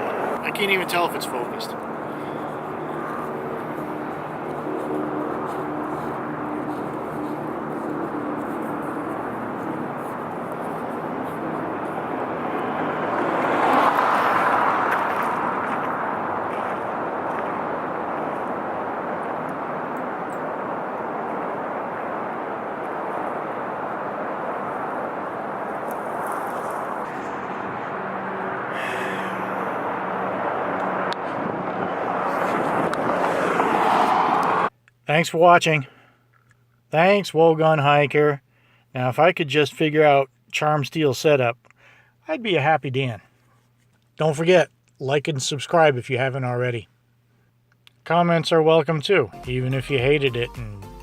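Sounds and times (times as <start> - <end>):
steady rushing noise: 0.0 - 34.7
vehicle passing by: 0.0 - 34.7.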